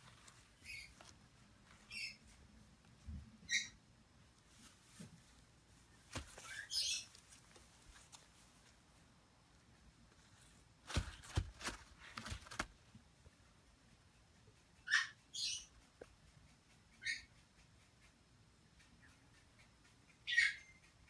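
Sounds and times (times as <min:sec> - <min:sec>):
parrot chick squeaky calls: 0:01.9 - 0:02.2, 0:03.5 - 0:03.8, 0:06.4 - 0:07.1, 0:14.8 - 0:15.8, 0:17.0 - 0:17.4, 0:20.2 - 0:20.9.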